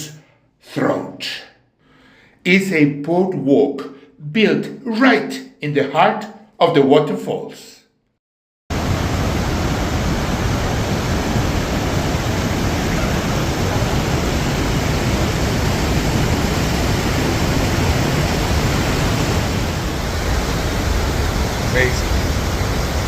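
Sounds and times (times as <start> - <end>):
waterfall roaring: 8.7 - 23.0.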